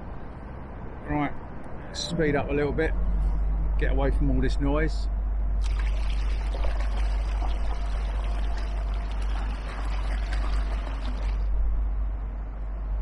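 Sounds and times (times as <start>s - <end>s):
steady low rumble: 0.0s - 13.0s
water splashing along hull: 5.6s - 11.8s.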